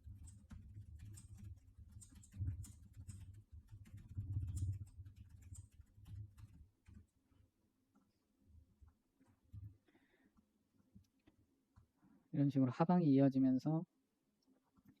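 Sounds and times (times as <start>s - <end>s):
computer mouse and keyboard clicks: 0.0s - 7.1s.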